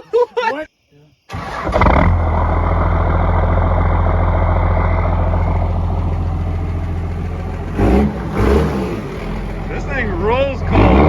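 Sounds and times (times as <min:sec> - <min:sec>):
diesel engine running: 0:01.3 - 0:11.0.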